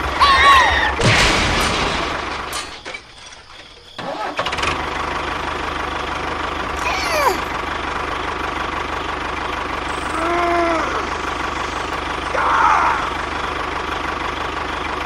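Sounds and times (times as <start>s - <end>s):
small tractor engine running: 4.0s - 15.0s.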